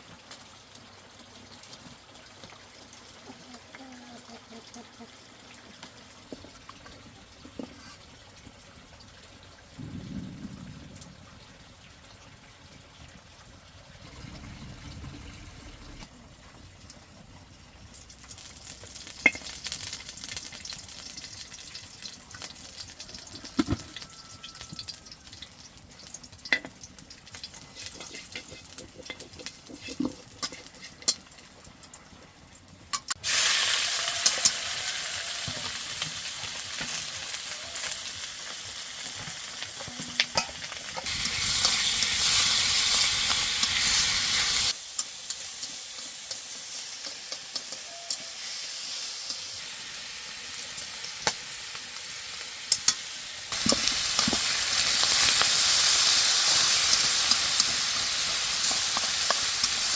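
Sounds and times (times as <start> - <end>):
food sizzling in hot oil: 14.0 - 16.1, 16.9 - 59.9
utensil scraping a pan: 27.6 - 31.2.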